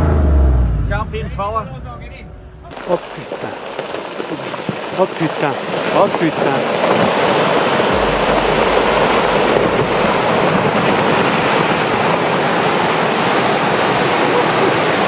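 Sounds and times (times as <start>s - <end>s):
deep rumble: 0.0s - 12.6s
falling rock rushing: 2.7s - 13.1s.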